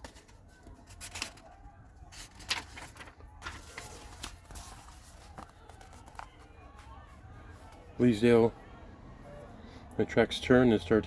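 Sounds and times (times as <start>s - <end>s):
book pages rustling: 0.0s - 6.9s.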